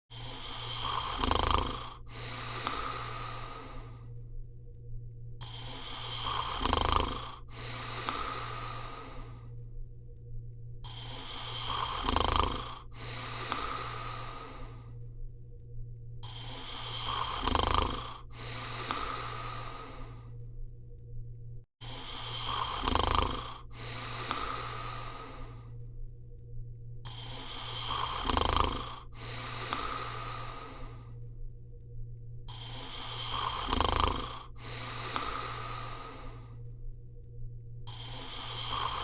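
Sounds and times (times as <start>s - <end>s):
dog snoring: 0.1s - 4.2s, 5.4s - 9.6s, 10.8s - 15.0s, 16.2s - 20.4s, 21.8s - 25.8s, 27.1s - 31.2s, 32.5s - 36.6s, 37.8s - 39.0s
airy hiss of breath: 5.4s - 9.3s.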